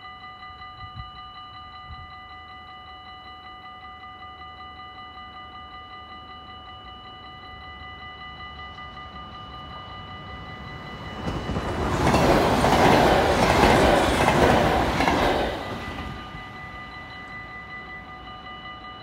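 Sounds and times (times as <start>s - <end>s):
level crossing warning bell: 0.0s - 19.0s
train passing: 6.8s - 19.0s.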